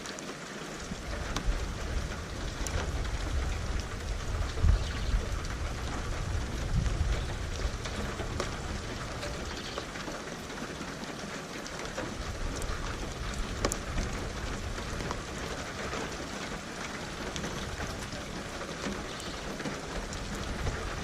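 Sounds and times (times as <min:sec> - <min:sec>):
rain drops on hard surface: 0:00.0 - 0:21.0
distant thunder rumble: 0:00.8 - 0:10.2.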